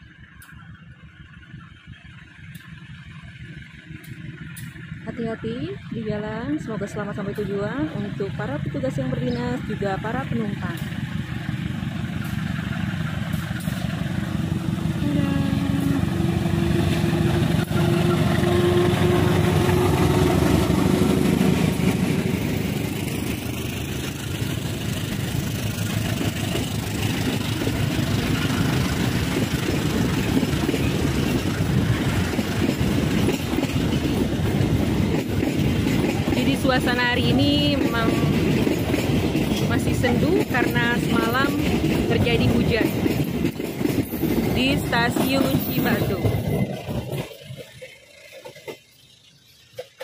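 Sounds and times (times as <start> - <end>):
locomotive steady tone: 0.0 - 50.0
wheels clattering over rail joints: 16.0 - 50.0.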